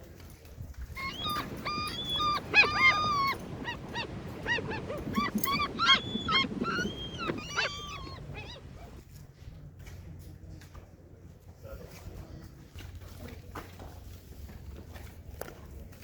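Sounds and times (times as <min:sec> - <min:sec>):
gulls calling: 0:01.0 - 0:09.0.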